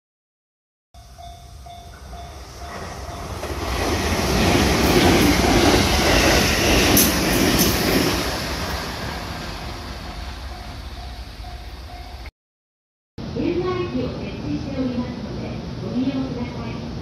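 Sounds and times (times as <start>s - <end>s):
train wheels rushing on rail: 1.9s - 11.4s.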